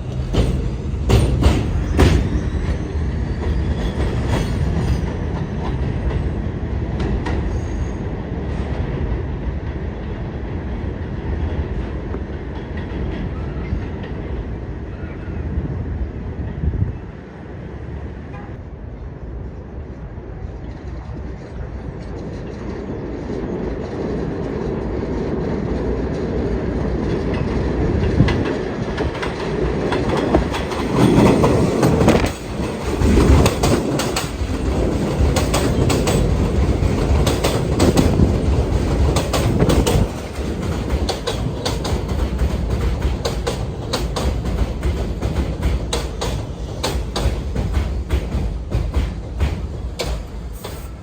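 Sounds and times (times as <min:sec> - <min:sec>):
subway train running past: 0:00.0 - 0:51.0
wheels clicking over rail joints: 0:27.0 - 0:51.0.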